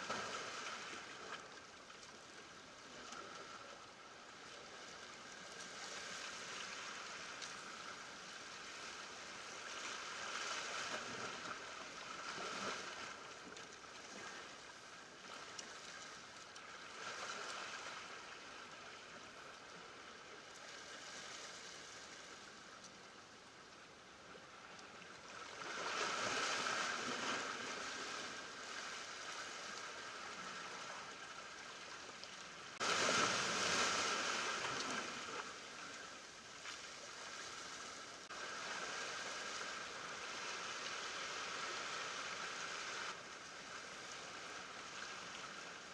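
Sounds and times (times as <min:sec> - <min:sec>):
sea waves splashing over rocks: 0:25.5 - 0:30.8, 0:32.8 - 0:36.1.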